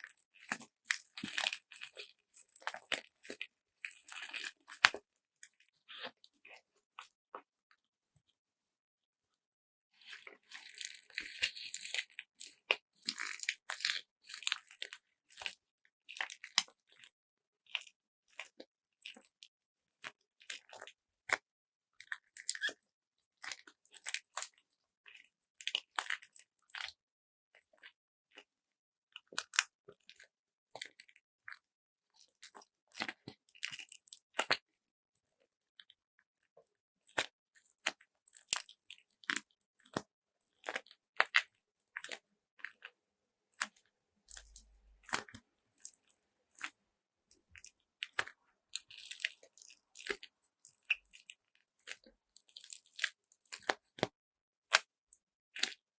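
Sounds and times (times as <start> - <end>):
hands squeezing crunchy slime bag: 0.0 - 6.6, 10.0 - 17.1, 22.0 - 22.8, 43.6 - 54.1.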